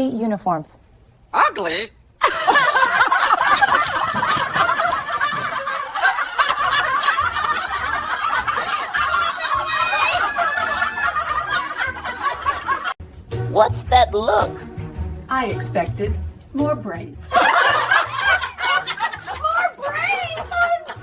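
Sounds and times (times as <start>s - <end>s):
people laughing: 2.2s - 13.0s, 17.2s - 21.0s.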